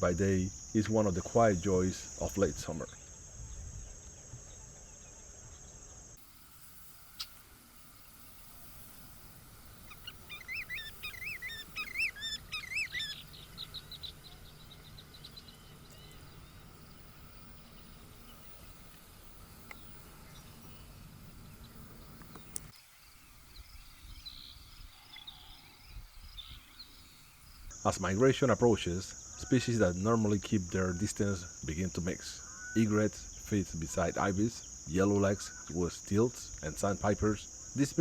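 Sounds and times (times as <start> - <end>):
faint bird chirps: 6.8 - 27.7, 32.3 - 34.7
songbird warbling and trilling: 7.0 - 27.7.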